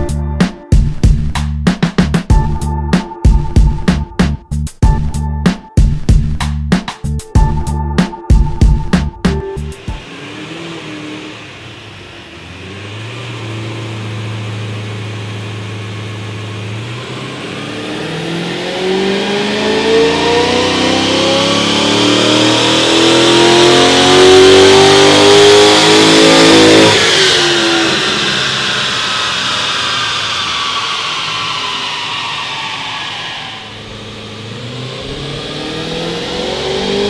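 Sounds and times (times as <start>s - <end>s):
car engine revving on dyno: 9.6s - 37.0s.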